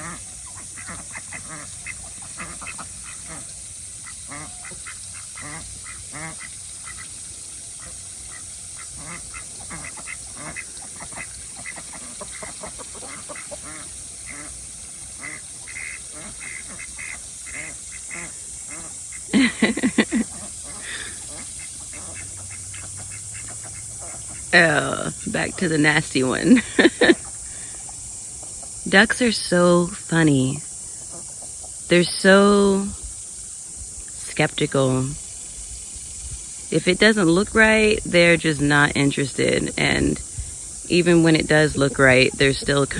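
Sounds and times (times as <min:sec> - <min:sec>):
ducks quacking: 0:00.0 - 0:07.2, 0:07.8 - 0:28.0.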